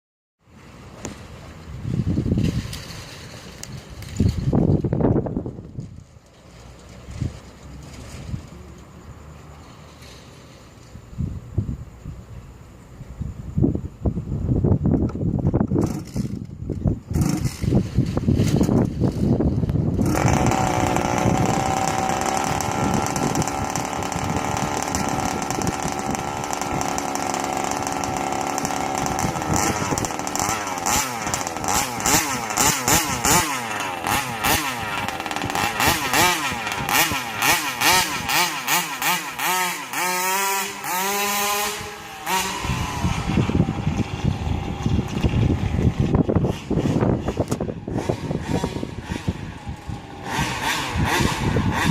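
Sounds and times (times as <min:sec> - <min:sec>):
two-stroke engine revving: 0:15.7 - 0:51.9.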